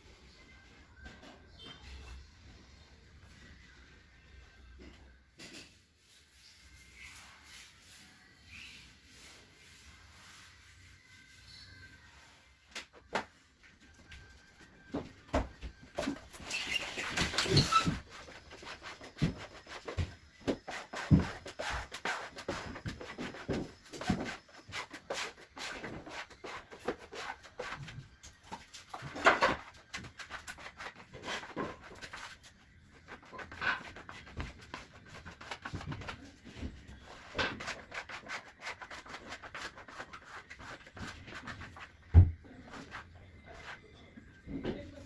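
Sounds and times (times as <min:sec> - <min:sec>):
rubbing and scraping on wood: 0:16.0 - 0:43.9.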